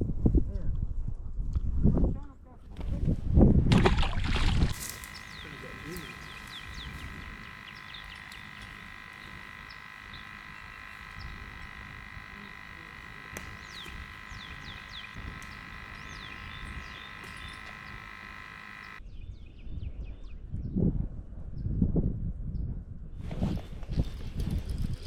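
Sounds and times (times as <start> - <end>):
wind rumble on microphone: 0.0 - 4.8, 19.1 - 25.0
steady shrill drone: 4.7 - 19.0.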